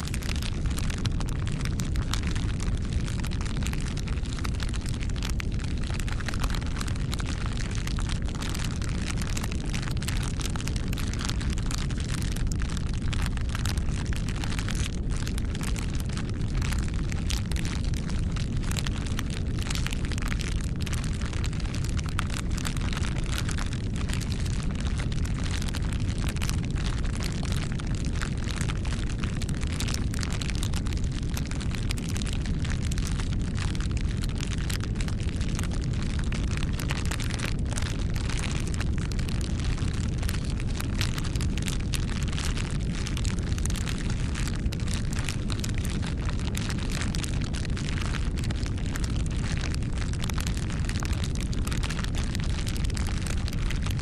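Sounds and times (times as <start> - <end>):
low rumble: 0.0 - 11.4
wood fire crackling and popping: 0.0 - 54.0.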